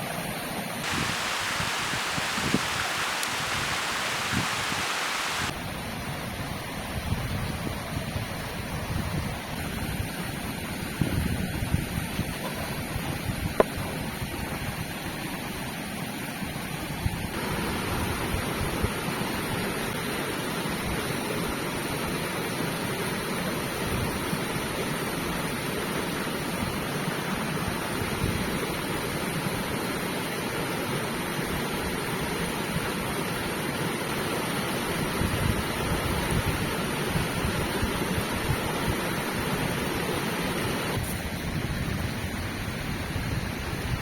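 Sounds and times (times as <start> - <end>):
river rushing: 0.8 - 5.6, 17.4 - 20.8.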